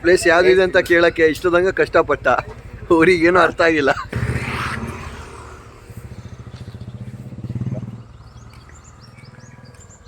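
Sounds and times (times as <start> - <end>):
motorcycle engine running: 0.5 - 10.0
small birds chirping: 5.6 - 10.0.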